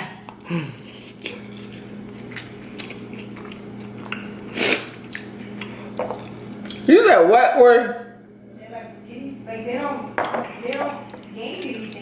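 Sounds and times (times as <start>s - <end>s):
man chewing: 0.2s - 6.9s, 11.0s - 12.0s.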